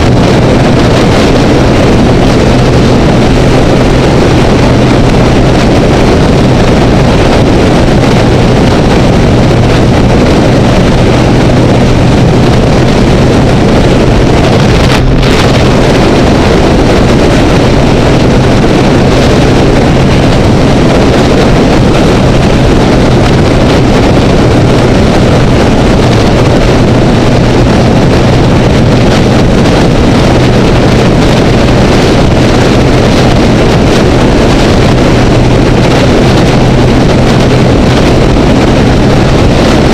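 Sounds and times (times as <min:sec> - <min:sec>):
motorcycle engine drone: 0:00.0 - 0:39.9
wind buffeting camera: 0:00.0 - 0:39.9.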